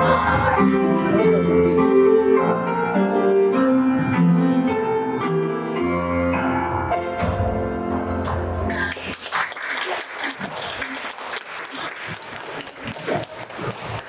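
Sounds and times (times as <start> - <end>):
piano playing folk-dance tune: 0.0 - 9.2.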